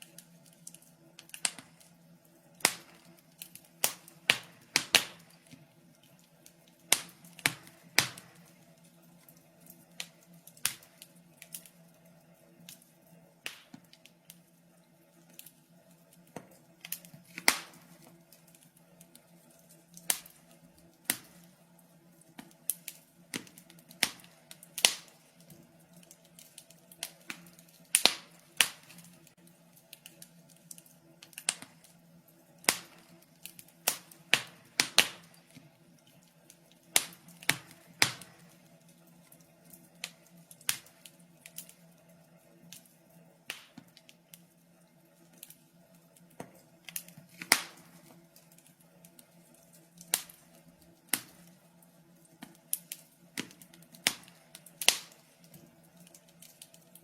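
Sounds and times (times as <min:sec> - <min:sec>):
fireplace fire crackling: 0:00.0 - 0:57.0.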